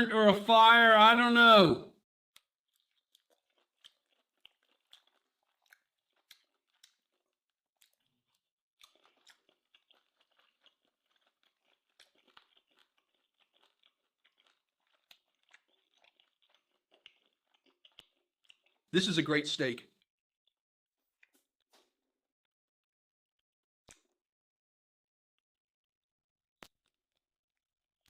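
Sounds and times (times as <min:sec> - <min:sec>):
chewing steak: 0:02.4 - 0:18.9.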